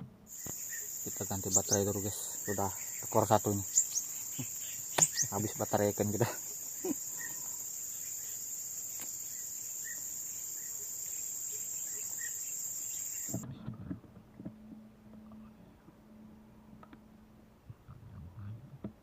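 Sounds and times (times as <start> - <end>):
high-pitched insect chorus: 0.3 - 13.4.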